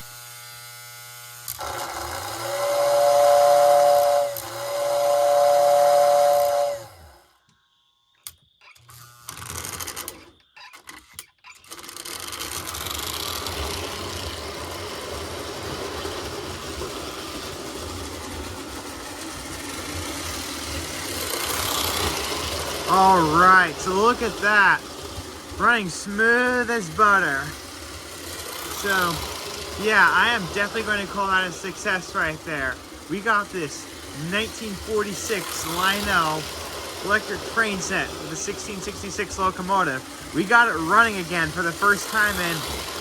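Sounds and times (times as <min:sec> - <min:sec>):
toy train running on track: 0:00.0 - 0:07.4, 0:08.2 - 0:43.0
toy train whistle: 0:01.6 - 0:07.4, 0:19.6 - 0:24.9, 0:25.5 - 0:43.0.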